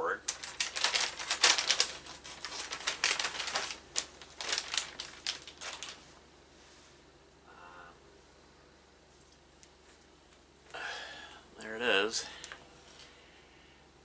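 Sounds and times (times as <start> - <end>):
packaging crinkling and rustling: 0.2 - 6.1.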